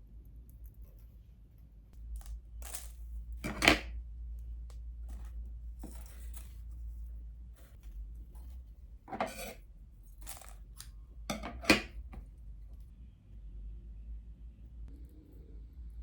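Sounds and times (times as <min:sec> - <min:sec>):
steady low hum: 0:00.0 - 0:16.0
small objects clicking and tapping: 0:02.0 - 0:04.0, 0:10.1 - 0:12.2
objects clattering: 0:02.2 - 0:03.9, 0:09.1 - 0:09.6, 0:11.3 - 0:12.2.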